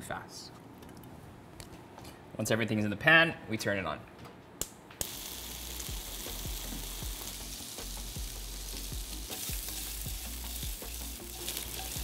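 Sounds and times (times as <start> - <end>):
food sizzling in a wok: 5.0 - 12.0.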